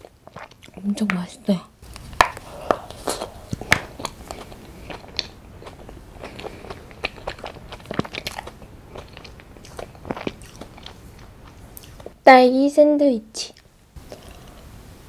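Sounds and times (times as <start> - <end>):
person chewing ice cream: 0.0 - 1.0, 1.8 - 12.2, 13.5 - 14.7
wet mouth clicks: 1.9 - 12.2.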